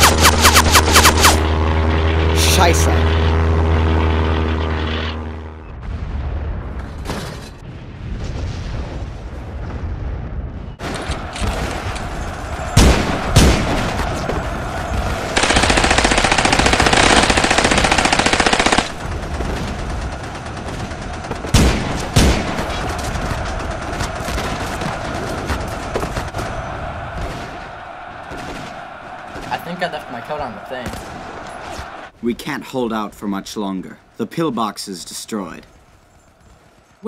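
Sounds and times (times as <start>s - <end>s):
loud bangs: 0.0s - 32.2s
rifle and machine-gun fire: 10.8s - 29.8s.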